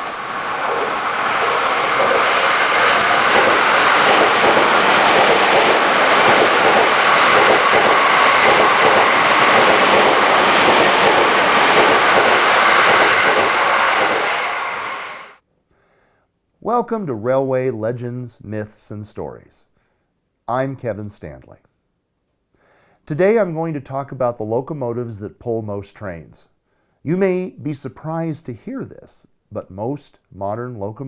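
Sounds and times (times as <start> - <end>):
electric train running past: 0.0 - 15.4.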